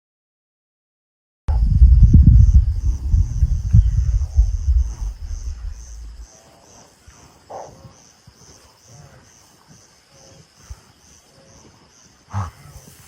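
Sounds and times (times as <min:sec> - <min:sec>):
insect chirping: 0:01.5 - 0:13.0
faint animal calls: 0:10.1 - 0:13.0.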